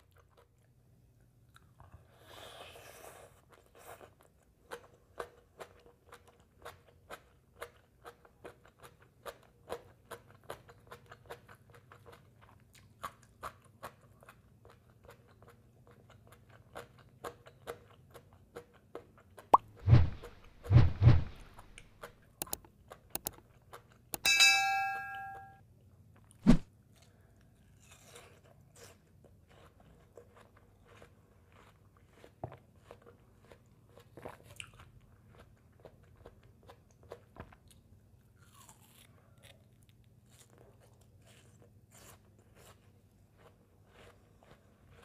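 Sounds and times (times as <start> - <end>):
biting and wet chewing: 3.0 - 24.1, 27.0 - 45.0
short ringing tone: 24.2 - 25.6.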